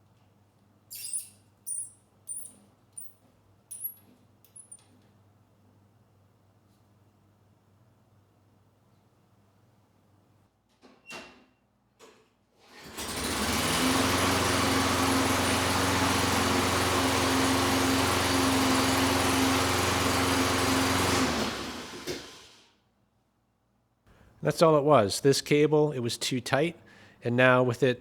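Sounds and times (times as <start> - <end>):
lawn mower engine running: 12.9 - 22.5.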